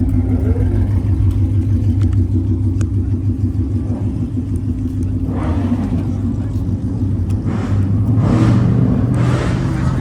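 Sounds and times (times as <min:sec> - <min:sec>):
motorcycle engine rumbling at low revs: 0:00.0 - 0:10.0.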